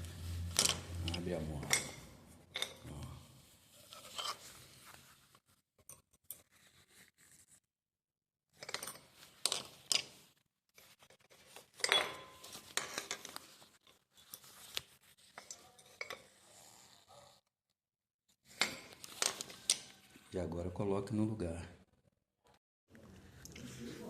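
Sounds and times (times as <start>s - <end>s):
metal clip clinking and scraping: 0.5s - 2.8s, 3.9s - 4.5s, 8.5s - 10.2s, 11.4s - 14.6s, 15.2s - 17.0s, 18.5s - 20.1s.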